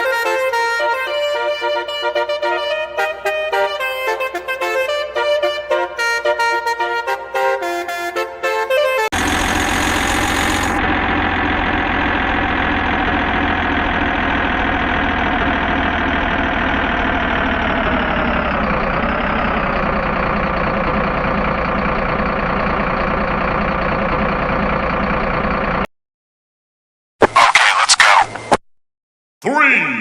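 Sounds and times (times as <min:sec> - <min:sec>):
truck engine running: 0:09.1 - 0:25.9.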